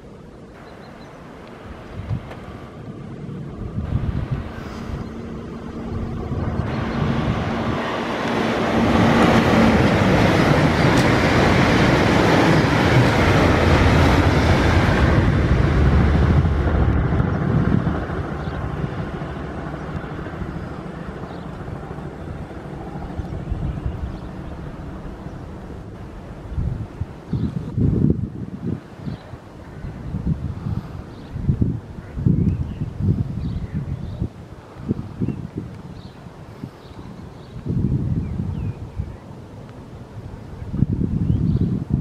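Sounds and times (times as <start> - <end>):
steady low hum: 0.0 - 11.8
electric train passing: 0.0 - 32.0.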